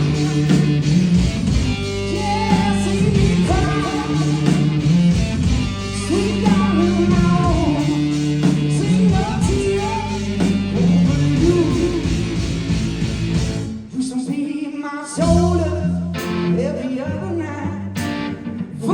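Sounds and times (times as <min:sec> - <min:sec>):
electric guitar: 0:00.0 - 0:14.1, 0:15.2 - 0:18.9
drums: 0:00.0 - 0:18.9
person singing: 0:02.0 - 0:04.9, 0:05.9 - 0:12.4.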